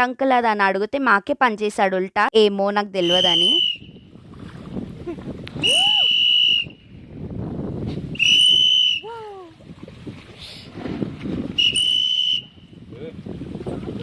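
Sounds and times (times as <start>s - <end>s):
high-pitched whistle blasts: 3.0s - 4.0s, 5.6s - 6.8s, 8.2s - 9.1s, 11.6s - 12.7s.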